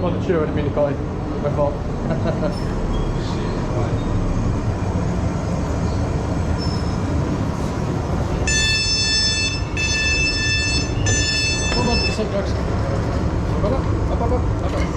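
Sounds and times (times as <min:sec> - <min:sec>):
train rumbling: 0:00.0 - 0:14.9
high electronic multi-tone beep: 0:08.5 - 0:12.3.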